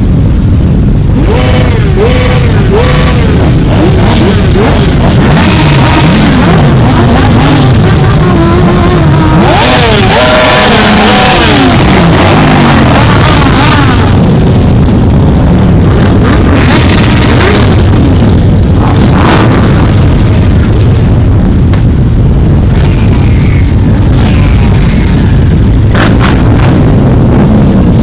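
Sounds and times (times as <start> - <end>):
motorcycles riding past revving: 1.2 - 14.5.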